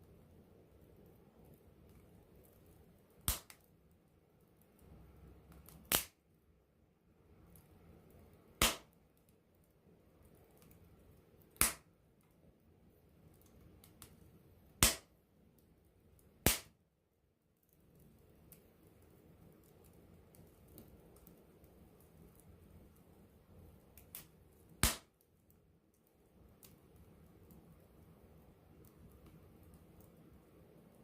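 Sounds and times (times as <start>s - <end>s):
campfire popping: 0.0s - 6.6s, 7.3s - 12.2s, 13.0s - 16.8s, 17.4s - 31.0s
faint fire crackle: 0.0s - 31.0s.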